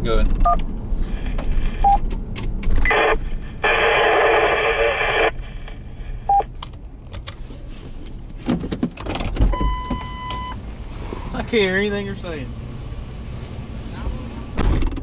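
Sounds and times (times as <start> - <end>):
radio static burst: 2.8 - 6.5
short beep: 9.6 - 10.6.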